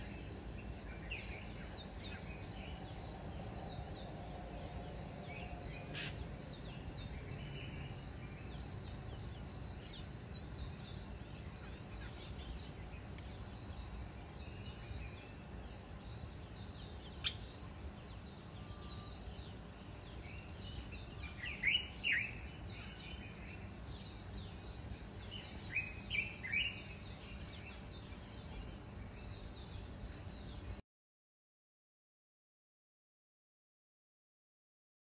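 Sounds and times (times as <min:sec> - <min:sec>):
wild birds chirping: 0:00.0 - 0:30.8
sweeping bird calls: 0:05.2 - 0:30.8.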